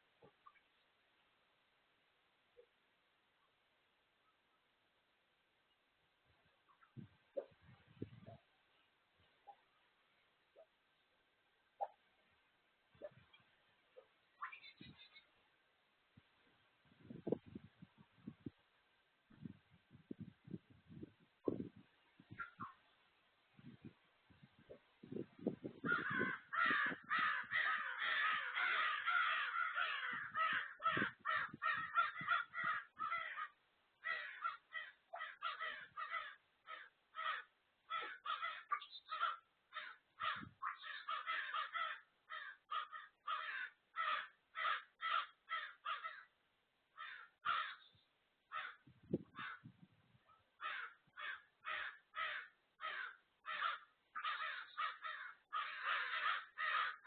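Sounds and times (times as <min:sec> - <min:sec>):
birds cawing: 0:25.8 - 0:46.3, 0:47.0 - 0:47.9, 0:48.5 - 0:49.7, 0:50.6 - 0:57.0.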